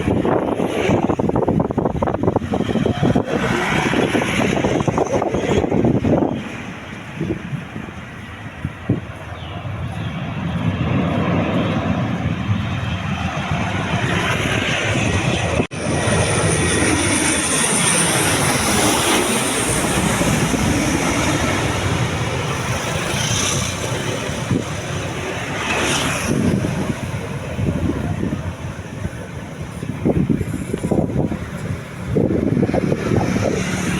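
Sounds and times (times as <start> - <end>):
turboprop aircraft passing overhead: 0.0 - 33.9.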